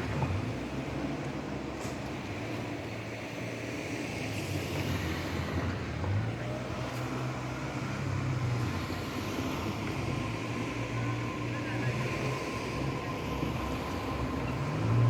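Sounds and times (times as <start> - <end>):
electric train running past: 9.0 - 15.0.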